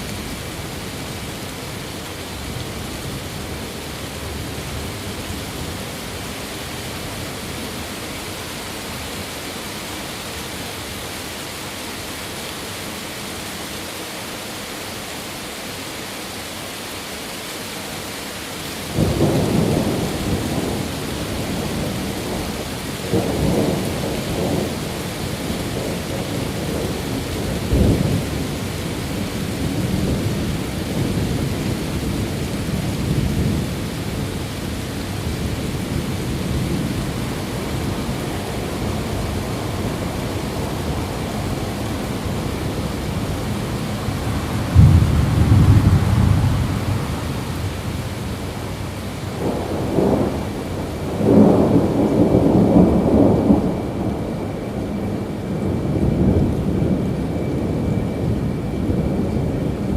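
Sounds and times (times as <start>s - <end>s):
rain hiss: 0.0s - 59.9s
thunder rumbling: 18.9s - 59.9s.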